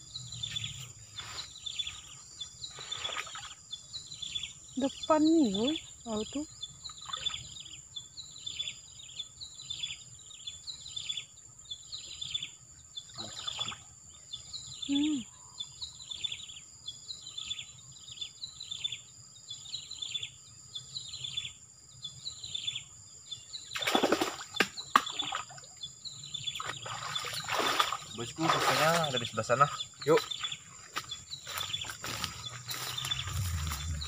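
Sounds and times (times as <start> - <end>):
person wading through water: 26.6 - 29.0
high-pitched whine: 32.7 - 34.0.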